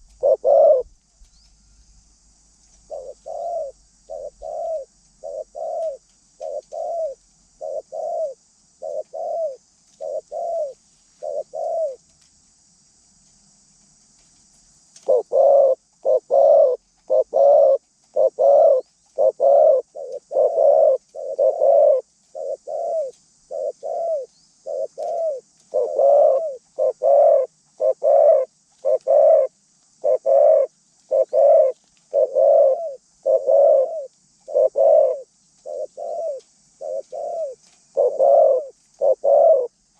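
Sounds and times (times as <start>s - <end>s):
dove cooing: 0.0s - 1.0s, 2.8s - 12.0s, 15.0s - 39.8s.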